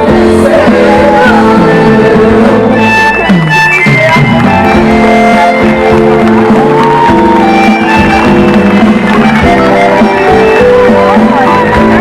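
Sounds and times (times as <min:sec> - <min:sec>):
live band playing: 0:00.0 - 0:12.0.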